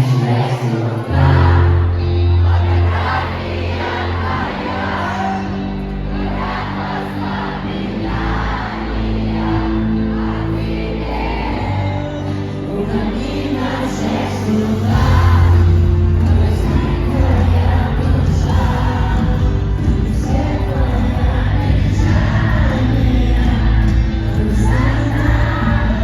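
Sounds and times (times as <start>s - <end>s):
crowd noise: 0.0s - 26.0s
live pop concert music: 0.0s - 26.0s
heavy bass beat: 14.9s - 26.0s.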